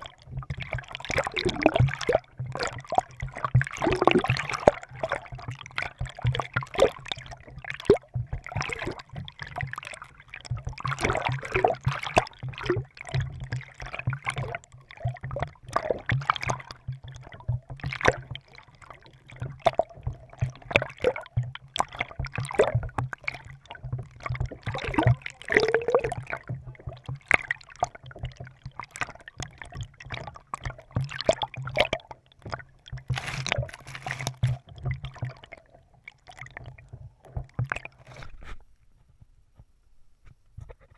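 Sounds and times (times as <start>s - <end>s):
water lapping on hull: 0.0s - 39.0s
paddle splashing water: 32.8s - 35.6s.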